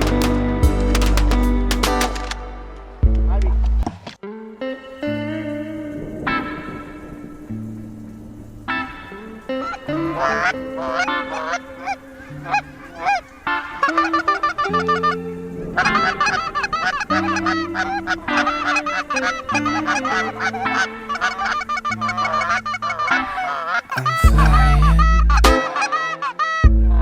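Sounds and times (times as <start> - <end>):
geese honking: 9.4 - 26.6
music with low chords: 24.2 - 25.6.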